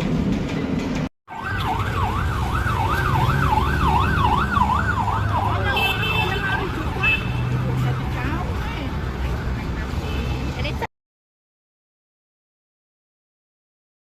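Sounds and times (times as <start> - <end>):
electronic siren warbling: 1.3 - 5.8.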